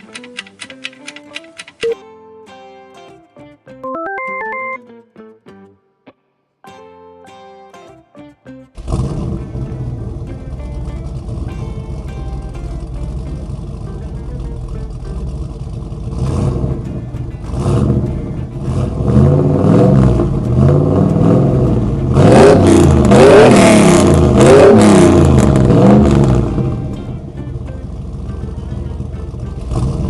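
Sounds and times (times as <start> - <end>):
background music: 0.0 - 30.0
vehicle engine revving: 8.8 - 30.0.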